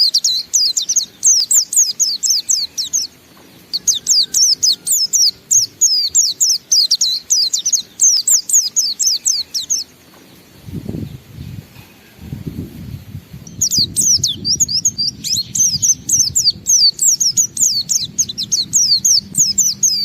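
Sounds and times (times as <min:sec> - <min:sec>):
bird singing fast high chirps: 0:00.0 - 0:10.0, 0:13.4 - 0:20.0
low rumble: 0:10.7 - 0:20.0.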